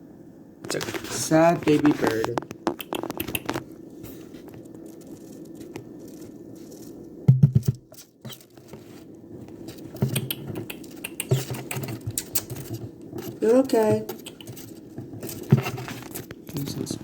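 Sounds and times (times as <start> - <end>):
rustling and scratching: 0.6 - 17.0
knocks: 7.3 - 7.8.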